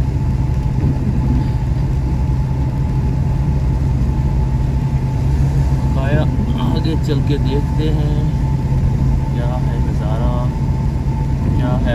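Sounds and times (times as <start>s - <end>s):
car engine drone: 0.0s - 11.9s
faint whine: 0.0s - 11.9s
road noise: 0.0s - 11.9s.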